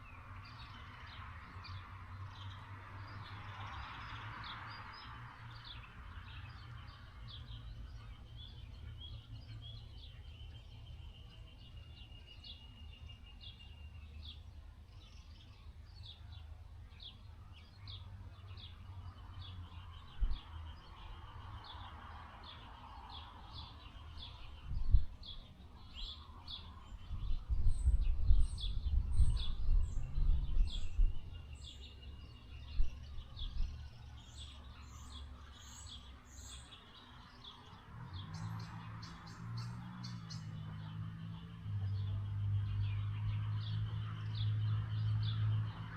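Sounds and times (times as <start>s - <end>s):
small birds chirping: 0.0s - 45.9s
wind buffeting microphone: 24.4s - 26.1s, 26.9s - 34.4s.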